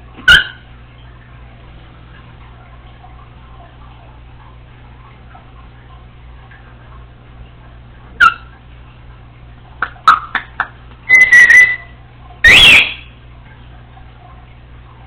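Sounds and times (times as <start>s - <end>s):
parrot whistling and chirping: 0.2s - 0.6s, 8.2s - 8.5s, 11.0s - 13.2s.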